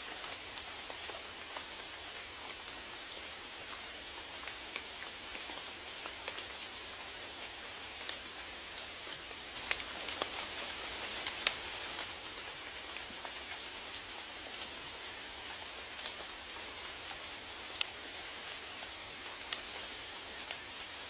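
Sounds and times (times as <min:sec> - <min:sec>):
steady rain hiss: 0:00.0 - 0:21.0
raindrops ticking: 0:00.1 - 0:21.0.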